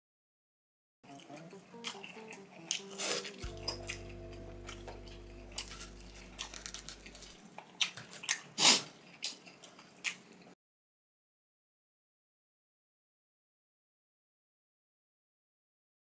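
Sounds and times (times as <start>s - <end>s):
chewing: 1.1s - 4.0s, 5.5s - 10.6s
faint hum of tones: 3.4s - 7.4s.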